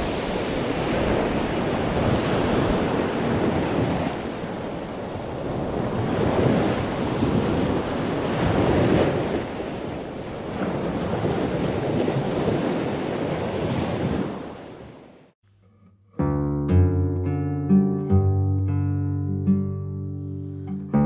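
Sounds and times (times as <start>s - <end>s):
wind blowing across microphone: 0.0s - 15.2s
sea waves: 0.0s - 15.4s.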